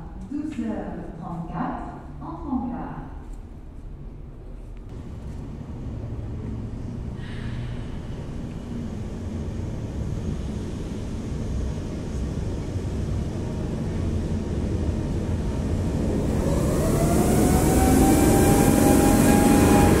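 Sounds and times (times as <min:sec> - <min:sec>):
electric locomotive rumble: 0:04.3 - 0:20.0
multi-tone whine: 0:04.9 - 0:20.0.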